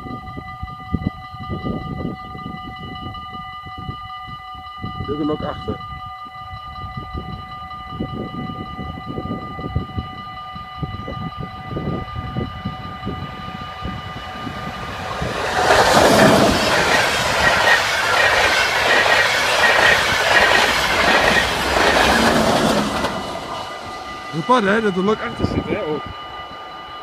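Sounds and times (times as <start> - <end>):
level-crossing bells ringing: 1.4 - 27.0
train passing with wheel clatter: 8.1 - 27.0.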